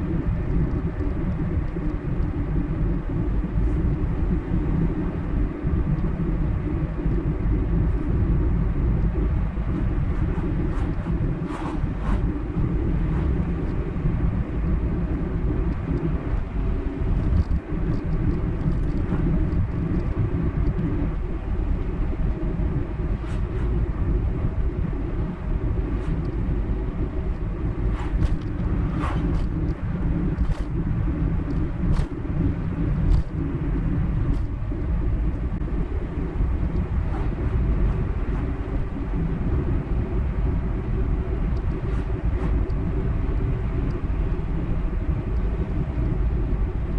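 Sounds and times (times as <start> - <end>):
light clicks and ticks: 33.1 - 33.4.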